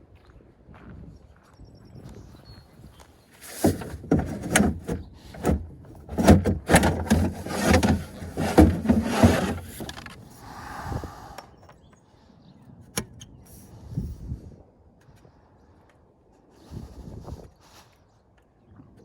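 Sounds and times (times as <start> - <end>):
hard objects knocking and scraping: 3.4 - 10.1.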